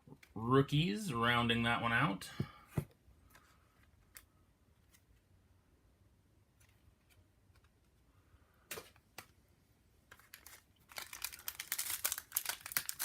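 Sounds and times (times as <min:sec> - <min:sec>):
foil wrapper crinkling: 0:10.1 - 0:13.0.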